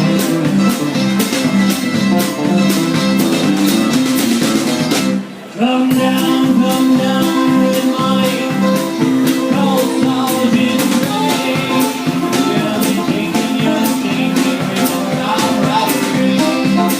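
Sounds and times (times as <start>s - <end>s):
guitar strumming: 0.0s - 16.9s
shaker percussion beat: 6.8s - 16.9s.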